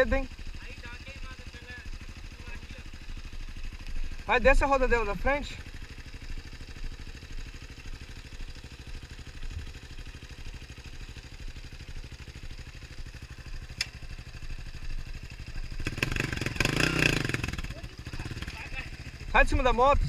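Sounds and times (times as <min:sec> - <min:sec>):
motorcycle engine idling: 0:00.0 - 0:20.0
sharp click: 0:13.8 - 0:14.0.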